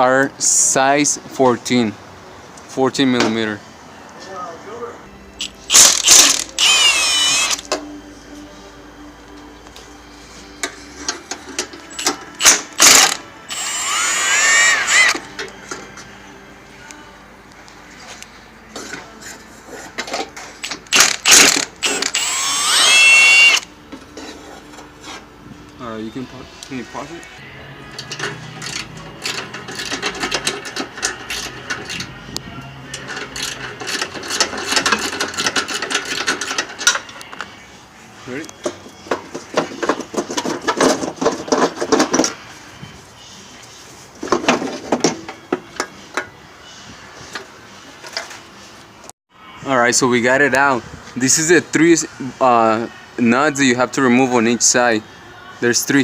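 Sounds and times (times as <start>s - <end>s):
power tool motor whining: 5.4s - 7.7s, 12.4s - 15.3s, 20.9s - 23.7s
ratchet clicks: 12.0s - 15.2s, 20.6s - 23.6s.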